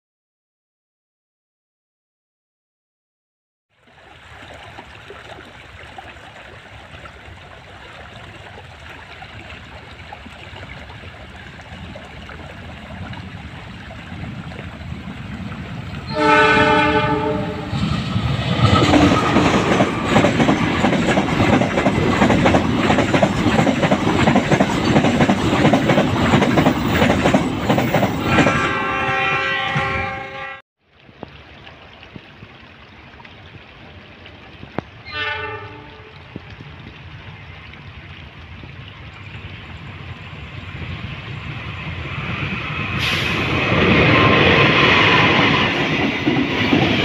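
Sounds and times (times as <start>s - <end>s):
diesel locomotive engine: 11.0s - 30.6s, 39.0s - 47.0s
train horn: 16.0s - 17.9s, 28.3s - 30.6s, 35.0s - 36.2s
wheels clacking over rails: 17.8s - 28.6s.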